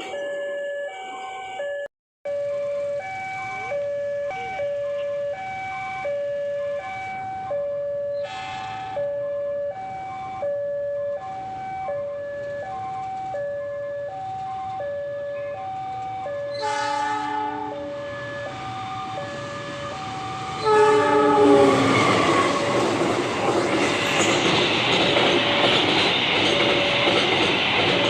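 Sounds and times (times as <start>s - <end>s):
level-crossing two-tone alarm: 0.0s - 27.5s
train horn: 16.5s - 18.4s, 19.3s - 23.0s.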